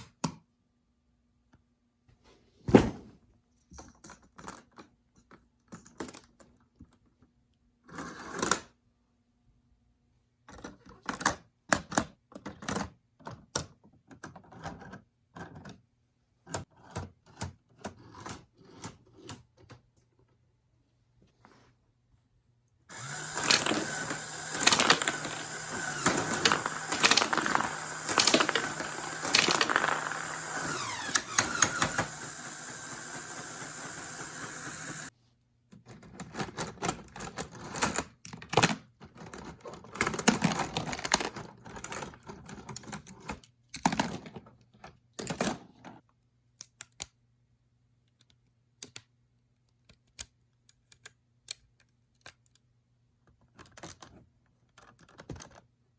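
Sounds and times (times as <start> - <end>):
motor hum: 22.9 - 35.1
plastic clattering: 22.9 - 35.1.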